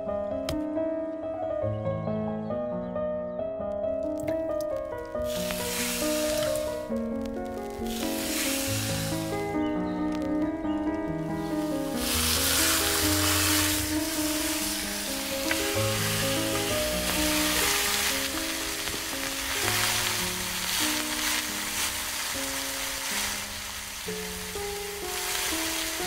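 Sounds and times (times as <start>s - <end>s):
food sizzling in a pan: 5.2s - 10.2s, 11.3s - 26.0s.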